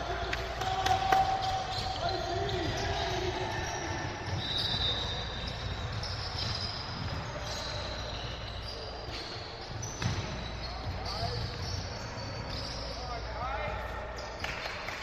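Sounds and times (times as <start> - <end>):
voices: 0.0 - 14.3
basketball dribbling on court: 1.8 - 8.1.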